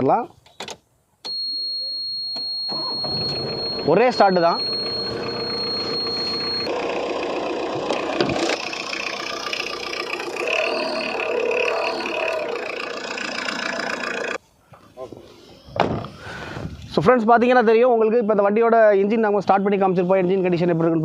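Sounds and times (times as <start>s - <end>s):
thin high whistle: 1.3s - 6.7s
diesel engine idling: 2.7s - 14.4s.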